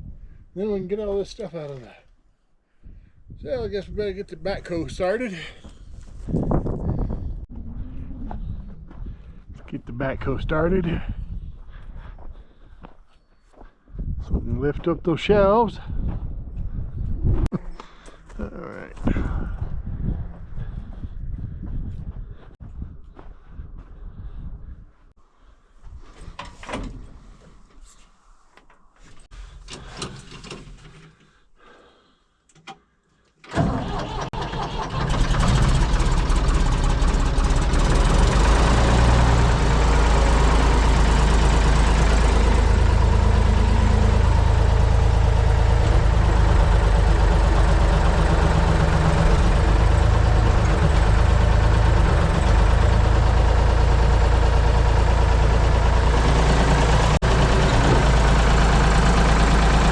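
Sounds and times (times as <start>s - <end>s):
backhoe engine starting and running: 29.0s - 31.5s, 33.4s - 59.9s.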